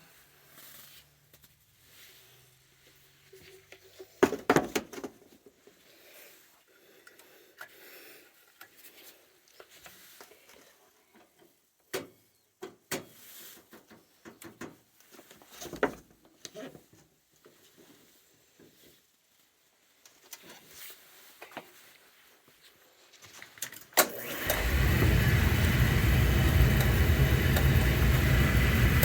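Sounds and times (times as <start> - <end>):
clicks: 24.0 - 29.0.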